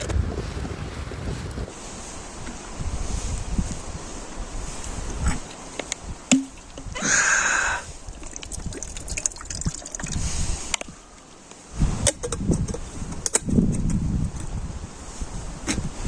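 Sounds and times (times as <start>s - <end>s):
low wind rumble: 0.0s - 16.0s
water pouring: 7.9s - 10.7s
clicks of camp cooking gear: 12.0s - 14.5s.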